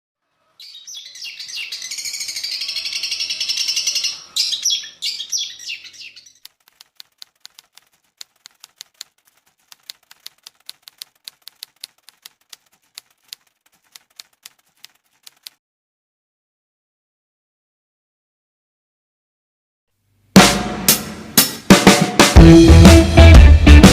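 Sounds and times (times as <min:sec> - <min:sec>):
songbird chattering: 0:00.6 - 0:06.5
faint sharp clicks: 0:06.3 - 0:15.6.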